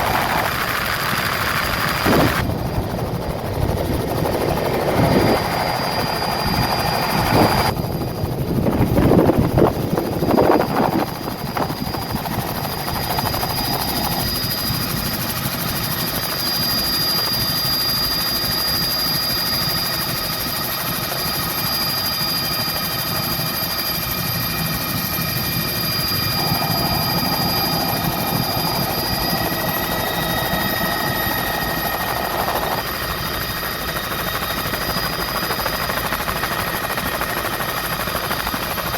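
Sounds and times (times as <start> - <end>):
high whine: 0.0 - 8.4, 24.5 - 36.2
helicopter engine and rotor noise: 0.0 - 38.9.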